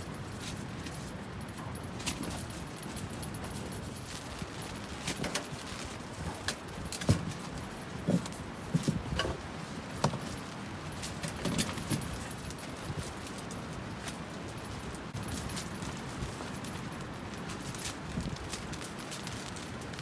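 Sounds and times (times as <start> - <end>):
strong wind: 14.8 - 18.8.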